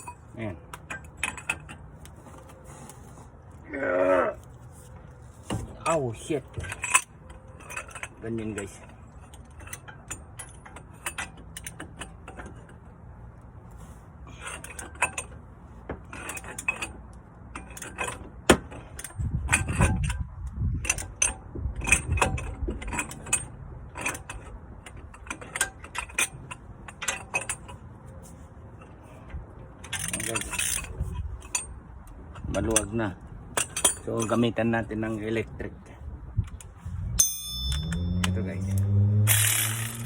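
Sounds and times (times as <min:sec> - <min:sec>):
metal tools clinking: 0:00.0 - 0:03.1, 0:05.8 - 0:12.8, 0:20.9 - 0:27.9, 0:29.8 - 0:31.8, 0:32.4 - 0:35.4, 0:36.6 - 0:40.0
ratchet wrench clicking: 0:37.2 - 0:40.0.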